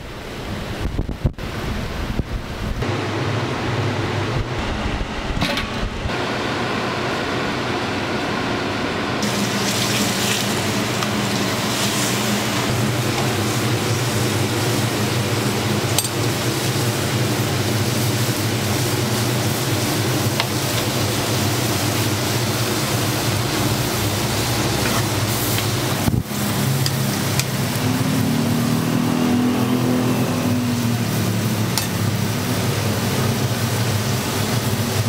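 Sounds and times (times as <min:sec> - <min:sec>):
food sizzling in oil: 0:09.2 - 0:35.0.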